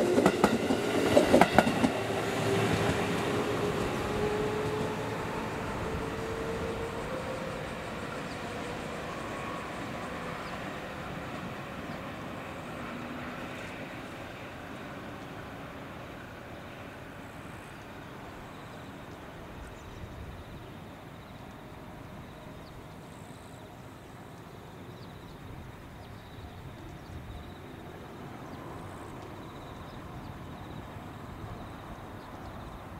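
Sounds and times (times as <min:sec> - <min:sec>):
train wheels rumbling on rail: 0:00.0 - 0:19.8.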